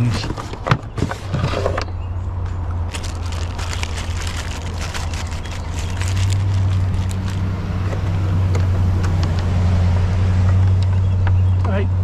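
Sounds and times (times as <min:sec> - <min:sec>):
low motor hum: 0:02.6 - 0:11.6
handled items clicking: 0:02.9 - 0:07.5.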